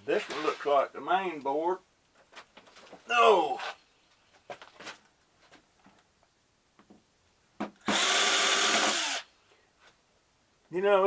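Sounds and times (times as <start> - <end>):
power drill driving screw: 7.8 - 9.3.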